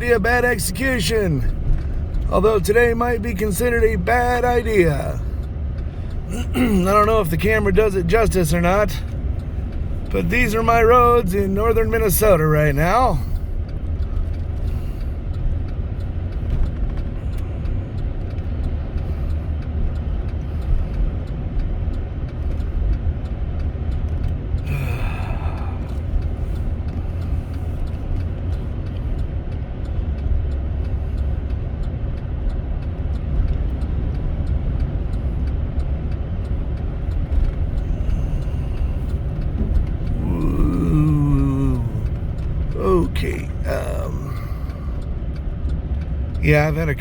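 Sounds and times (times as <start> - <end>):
truck engine and road rumble: 0.0 - 47.0.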